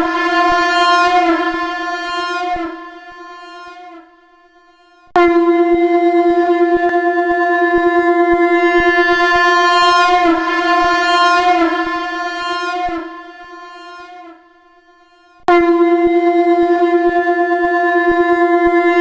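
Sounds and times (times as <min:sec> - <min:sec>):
conch shell blown: 0:00.0 - 0:16.8.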